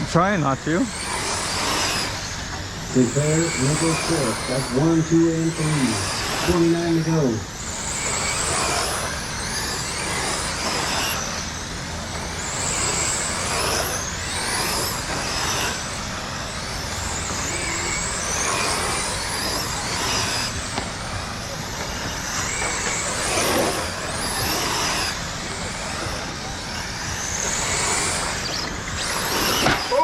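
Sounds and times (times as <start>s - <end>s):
rc car motors whining: 0.0s - 30.0s.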